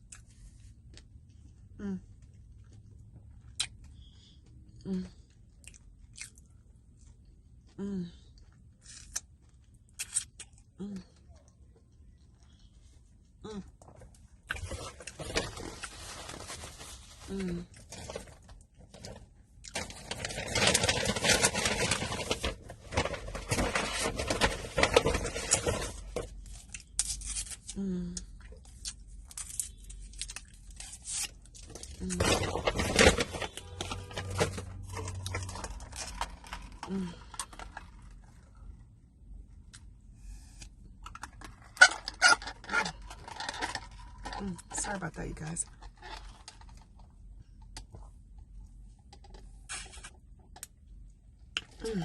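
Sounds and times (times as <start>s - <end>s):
eating and food handling: 0.0s - 40.1s, 40.7s - 52.0s.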